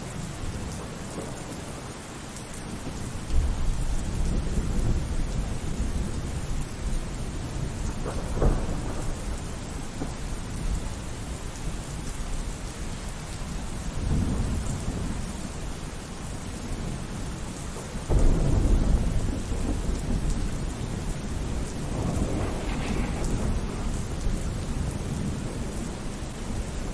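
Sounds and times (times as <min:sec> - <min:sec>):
steady rain: 0:00.0 - 0:26.9
thunder clap: 0:18.1 - 0:26.0
thunder rumbling: 0:18.1 - 0:26.9.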